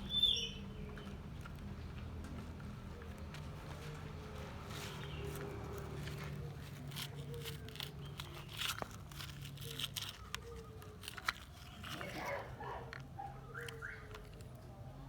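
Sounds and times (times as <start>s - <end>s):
toy vehicles scraping through sand: 4.9s - 13.0s.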